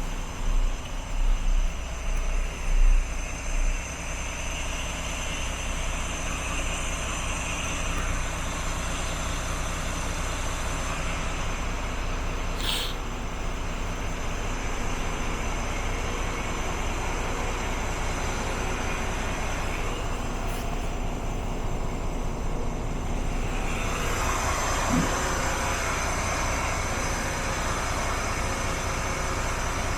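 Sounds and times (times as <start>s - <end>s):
diesel truck engine running: 0.0s - 29.9s.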